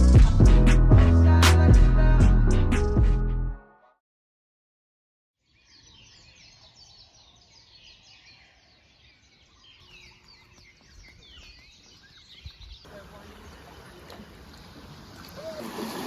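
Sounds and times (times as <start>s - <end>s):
many small birds chirping: 5.5s - 15.1s.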